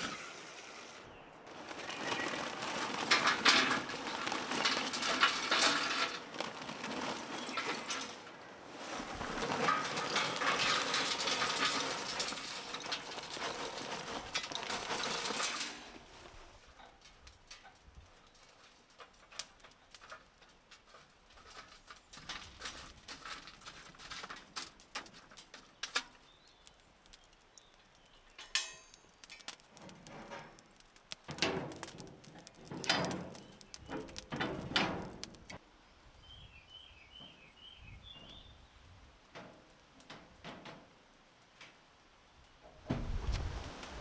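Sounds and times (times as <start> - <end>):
clicks and knocks: 28.3 - 35.6.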